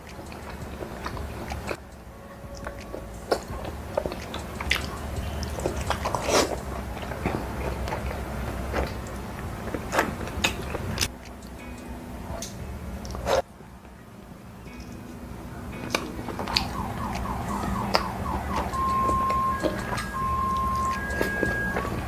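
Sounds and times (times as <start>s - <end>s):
crunchy chewing: 0.0s - 1.8s, 2.5s - 11.2s
wet mouth sounds: 0.0s - 1.8s, 2.6s - 11.1s
low steady hum: 0.0s - 22.0s.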